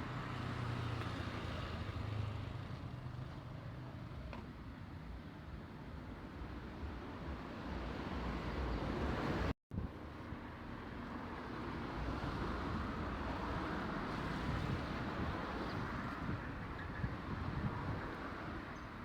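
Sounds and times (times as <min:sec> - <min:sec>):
road traffic noise: 0:00.0 - 0:19.0
wind on microphone: 0:14.2 - 0:18.5.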